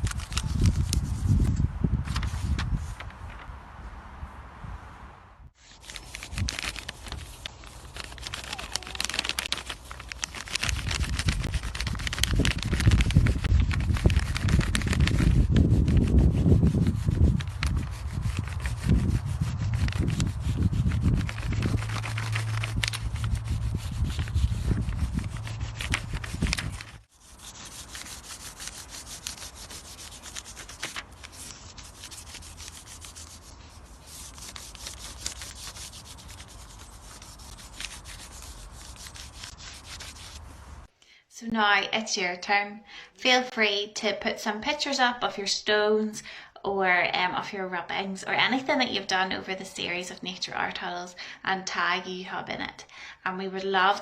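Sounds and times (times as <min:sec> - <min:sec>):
crayon scratching on paper: 0:00.4 - 0:01.5, 0:05.6 - 0:40.4
low rumble: 0:18.8 - 0:27.0.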